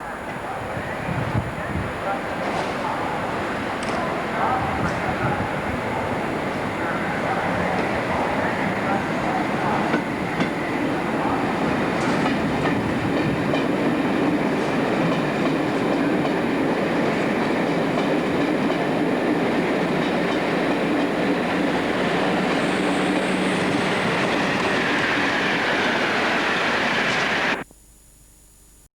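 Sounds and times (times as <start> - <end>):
train wheels on rail: 0.2 - 27.6
faint high whine: 22.7 - 28.9.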